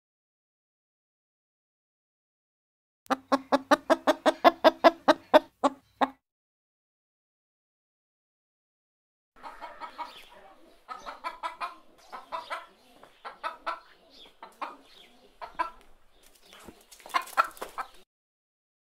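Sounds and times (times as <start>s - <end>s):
hen clucking: 3.1s - 6.2s, 9.4s - 18.0s.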